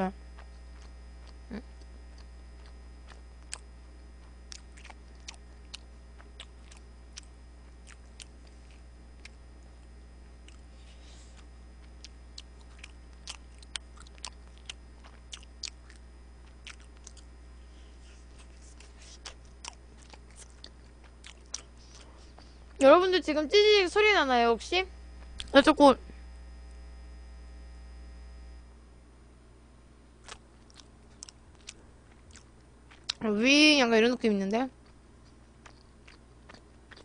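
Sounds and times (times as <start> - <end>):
low electrical hum: 0.0 - 37.0
chewing and biting clicks: 0.4 - 17.3, 18.0 - 22.8, 25.2 - 25.5, 30.2 - 33.2, 34.8 - 37.0.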